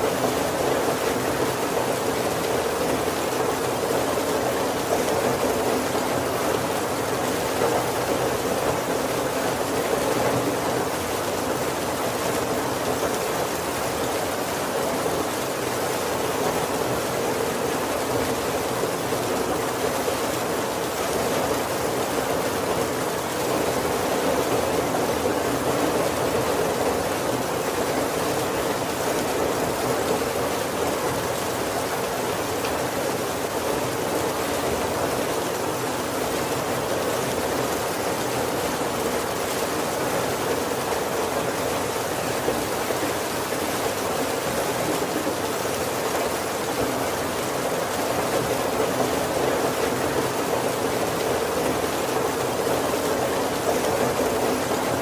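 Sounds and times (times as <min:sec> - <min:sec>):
heavy rain on a roof: 0:00.0 - 0:55.0.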